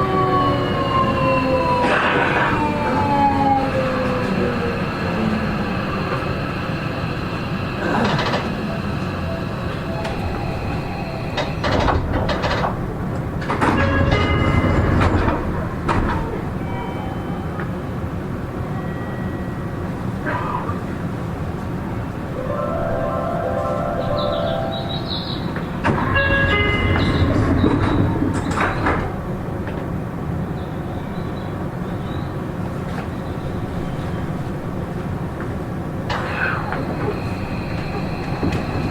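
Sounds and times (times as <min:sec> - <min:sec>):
electric train humming: 0:00.0 - 0:38.9
voices: 0:01.8 - 0:11.8, 0:18.6 - 0:26.4.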